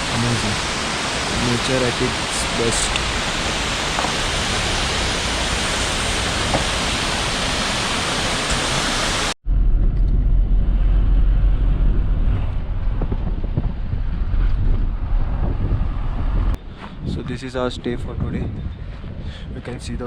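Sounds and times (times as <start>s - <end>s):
waterfall roaring: 0.0s - 9.4s
deep uneven low rumble: 9.4s - 19.8s.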